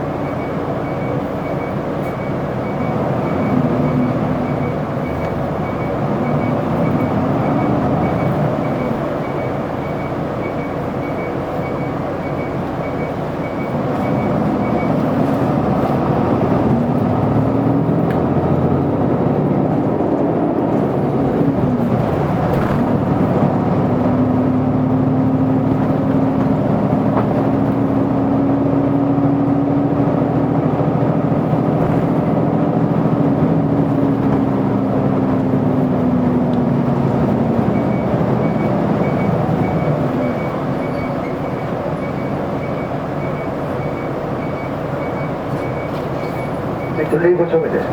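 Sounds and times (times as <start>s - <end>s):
bus engine running: 0.0s - 47.9s
road noise: 0.0s - 47.9s.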